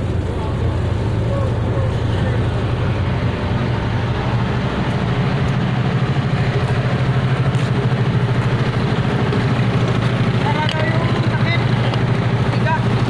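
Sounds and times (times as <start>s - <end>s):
large engine throbbing hum: 0.0s - 13.0s.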